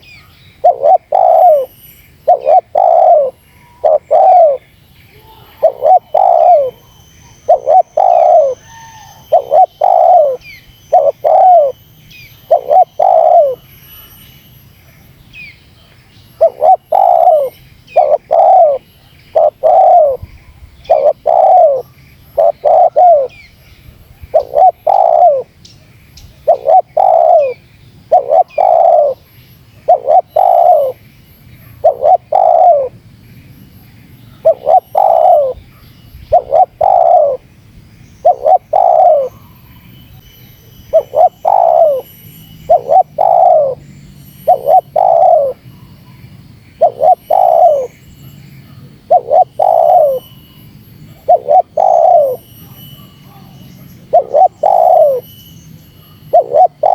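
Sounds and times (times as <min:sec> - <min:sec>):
dove cooing: 0:00.0 - 0:04.6, 0:05.4 - 0:11.8, 0:12.5 - 0:13.6, 0:16.4 - 0:23.4, 0:24.2 - 0:25.5, 0:26.4 - 0:31.0, 0:31.6 - 0:32.9, 0:34.3 - 0:37.4, 0:38.2 - 0:39.6, 0:40.9 - 0:42.0, 0:42.7 - 0:43.8, 0:44.4 - 0:46.2, 0:46.8 - 0:47.9, 0:48.7 - 0:50.3, 0:51.1 - 0:55.2, 0:56.3 - 0:56.9.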